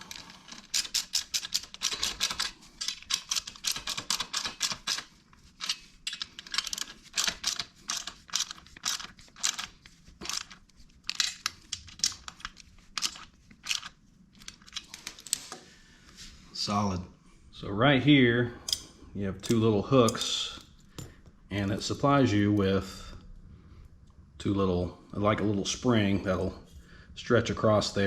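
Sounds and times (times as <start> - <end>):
socket ratchet clicking: 0.7 - 9.7.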